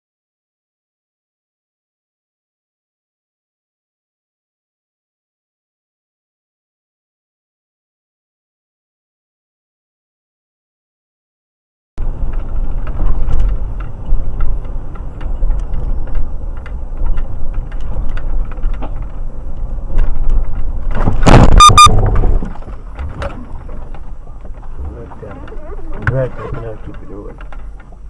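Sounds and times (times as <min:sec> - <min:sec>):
small rattles and clicks: 0:12.0 - 0:21.4, 0:22.0 - 0:28.0
car road and engine rumble: 0:12.0 - 0:28.0
loud rush of noise: 0:20.8 - 0:27.2.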